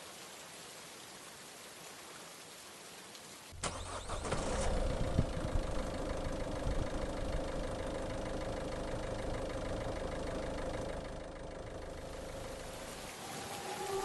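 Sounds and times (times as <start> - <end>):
diesel engine starting and idling: 3.6 - 13.1.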